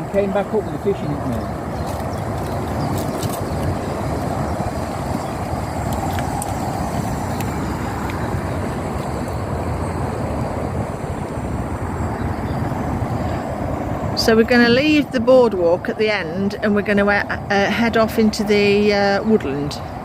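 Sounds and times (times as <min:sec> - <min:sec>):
powered wheelchair on wooden boards: 0:00.0 - 0:15.0.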